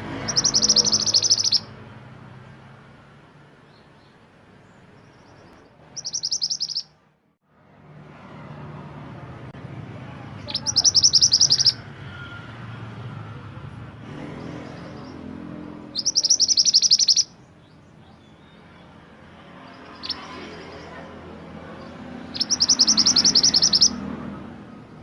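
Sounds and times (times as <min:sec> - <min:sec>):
songbird chirping: 0:00.0 - 0:02.8, 0:03.4 - 0:07.1, 0:10.2 - 0:12.4, 0:14.1 - 0:25.0.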